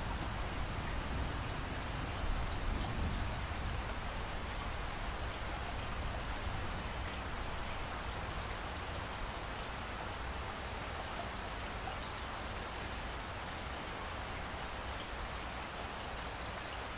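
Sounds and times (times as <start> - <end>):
raindrop ticks: 13.7 - 14.0.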